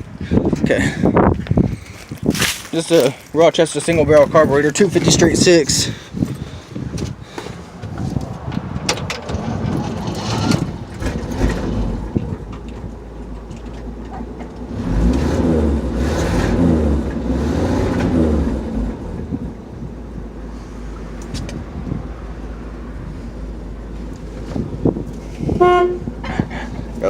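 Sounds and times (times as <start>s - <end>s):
car engine idling rough: 9.3s - 27.0s.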